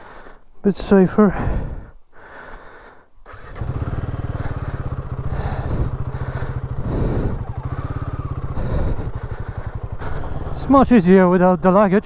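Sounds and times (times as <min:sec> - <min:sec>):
single-cylinder engine low revs: 0:03.2 - 0:12.0.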